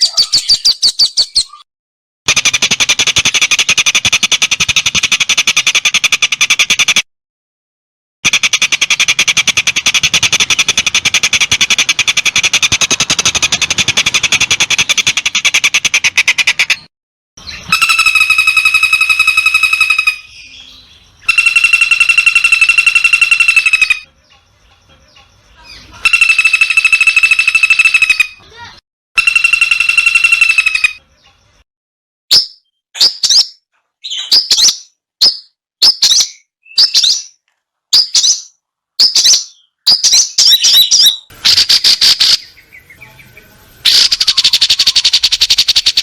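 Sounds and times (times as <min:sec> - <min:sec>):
long buzzing calls: 0:17.5 - 0:20.5, 0:21.2 - 0:24.1, 0:26.0 - 0:28.4, 0:29.2 - 0:31.0, 0:41.3 - 0:46.0
rapid high trill: 0:17.7 - 0:20.3, 0:21.3 - 0:24.1, 0:26.0 - 0:28.3, 0:29.2 - 0:31.0.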